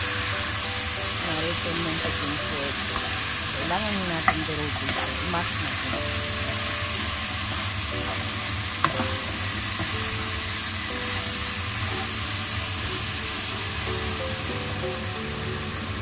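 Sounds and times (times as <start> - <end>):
meat sizzling in hot oil: 0.0 - 16.0
spatula stirring in wok: 2.7 - 12.9.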